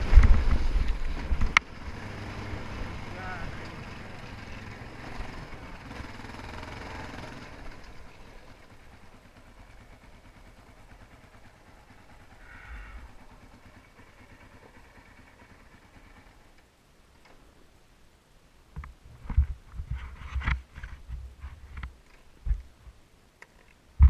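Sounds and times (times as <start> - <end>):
dirt bike engine running: 0.0 - 16.4.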